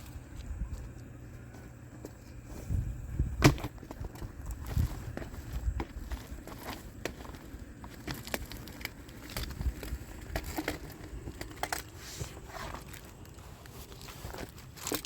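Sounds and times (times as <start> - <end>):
crinkling and crunching: 0.0 - 15.0.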